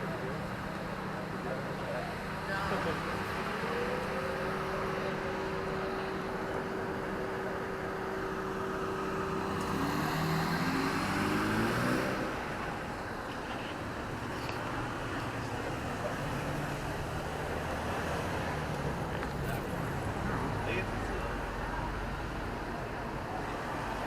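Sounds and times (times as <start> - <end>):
traffic engine hum: 0.0 - 24.0
vehicle accelerating past: 9.3 - 12.6.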